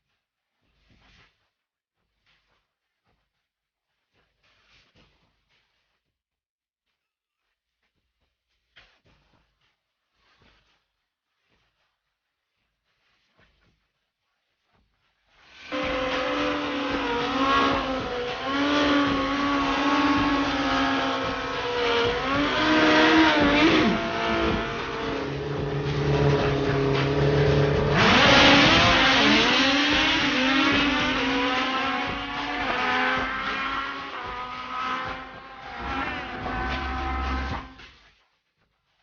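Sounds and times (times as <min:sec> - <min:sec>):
motorcycle engines revving: 0:15.6 - 0:37.8.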